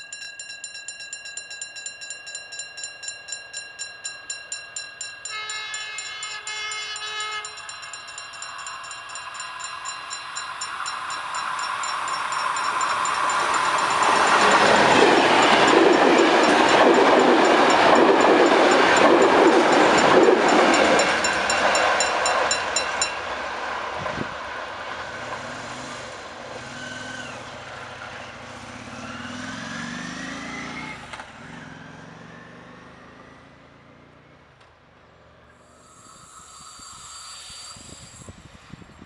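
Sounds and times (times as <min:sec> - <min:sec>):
level-crossing bell ticking: 0:00.0 - 0:23.3
passenger train passing: 0:02.3 - 0:31.6, 0:35.4 - 0:39.0
motorcycle pulling away: 0:26.5 - 0:34.6.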